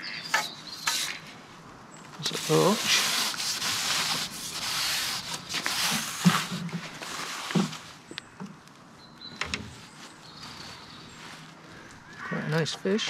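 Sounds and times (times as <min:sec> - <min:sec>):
close rustling and rubbing: 0:02.2 - 0:08.1, 0:09.7 - 0:11.8.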